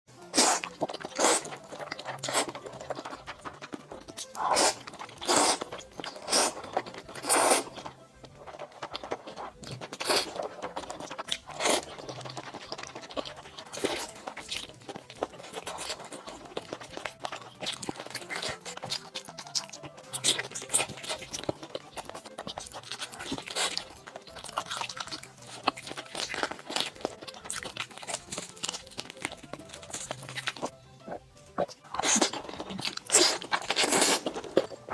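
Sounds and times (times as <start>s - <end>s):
person chewing food: 0.1s - 34.9s
person eating with crunches: 0.2s - 34.9s.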